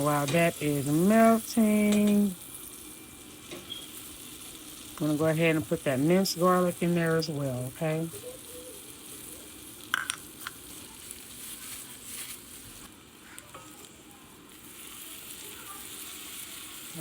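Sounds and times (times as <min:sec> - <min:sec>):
garlic sizzling in butter: 0:00.0 - 0:17.0
utensil clicks against pan: 0:09.9 - 0:10.6.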